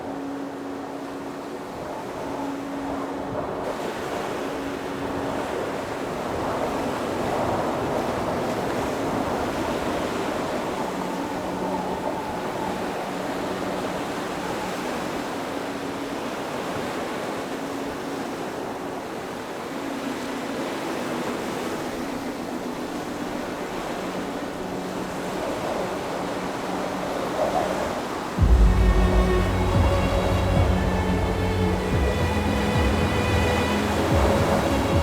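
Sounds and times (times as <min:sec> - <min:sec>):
steady rushing noise: 0:27.9 - 0:35.0.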